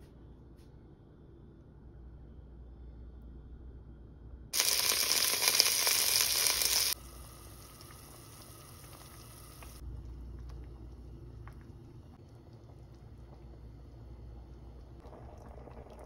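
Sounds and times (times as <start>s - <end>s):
food sizzling in hot pan: 4.6s - 9.8s.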